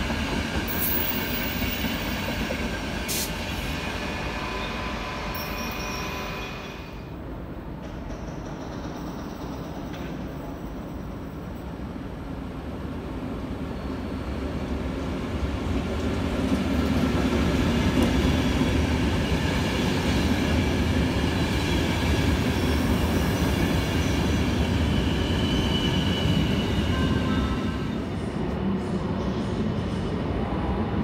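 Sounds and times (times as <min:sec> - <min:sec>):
train wheels rumbling on rails: 0:00.0 - 0:31.0
faint high wheel squeal: 0:04.3 - 0:07.1, 0:13.6 - 0:14.4.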